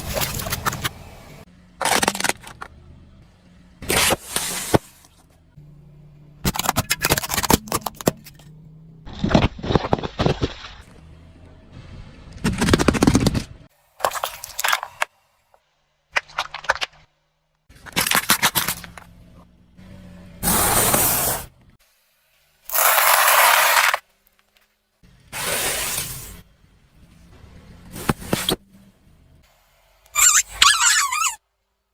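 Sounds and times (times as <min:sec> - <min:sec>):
objects cracking under car tyre: 0:06.4 - 0:10.9.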